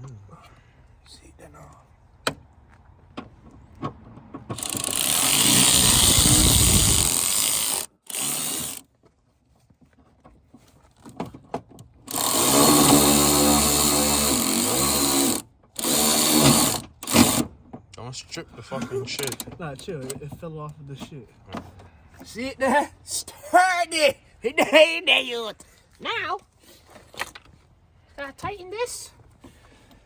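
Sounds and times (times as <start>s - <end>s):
cordless power driver running: 4.6s - 8.8s, 12.1s - 17.4s.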